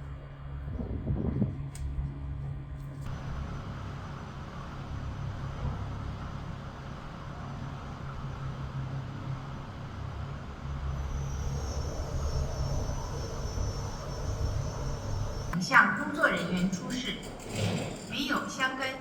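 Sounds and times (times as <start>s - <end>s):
machinery low drone: 0.0s - 15.7s
high whine: 3.1s - 15.6s.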